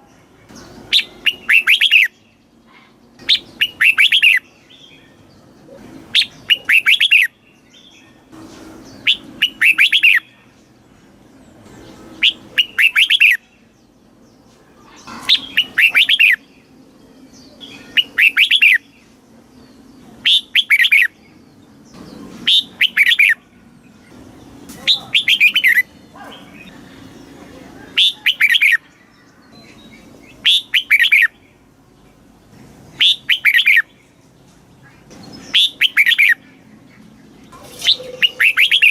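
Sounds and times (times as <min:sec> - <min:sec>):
bulbul singing whistled phrases: 0:00.0 - 0:02.6, 0:03.2 - 0:05.3, 0:06.1 - 0:08.2, 0:08.9 - 0:10.6, 0:12.1 - 0:13.6, 0:15.3 - 0:16.8, 0:17.4 - 0:19.2, 0:20.2 - 0:21.4, 0:22.4 - 0:23.5, 0:24.8 - 0:31.6, 0:32.9 - 0:34.2, 0:35.2 - 0:37.1, 0:37.7 - 0:38.9.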